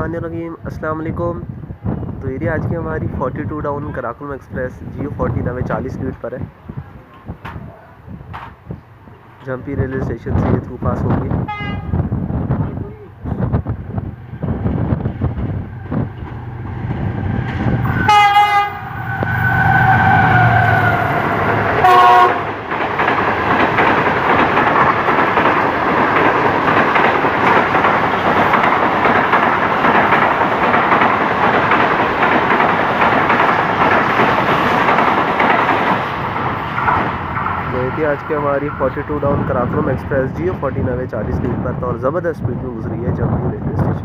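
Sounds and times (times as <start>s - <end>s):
locomotive engine rumble: 5.4s - 41.8s
train wheels clattering on rail: 7.1s - 8.8s, 13.5s - 18.5s, 21.4s - 37.7s
locomotive horn blasts: 11.5s - 12.0s, 17.9s - 20.4s, 21.8s - 22.5s.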